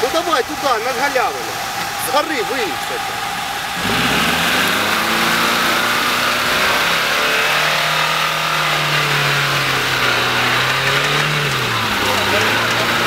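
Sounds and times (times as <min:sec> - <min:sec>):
engine revving under load: 0:00.0 - 0:13.0
lower rising tone: 0:02.8 - 0:13.0.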